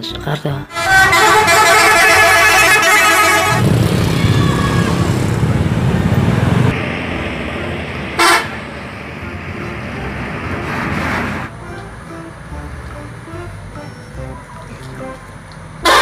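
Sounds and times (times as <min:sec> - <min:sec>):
low engine rumble: 0:00.0 - 0:16.0
short horn toot: 0:00.7 - 0:03.6
toy bus horn: 0:00.7 - 0:03.6, 0:08.2 - 0:08.6, 0:15.8 - 0:16.0.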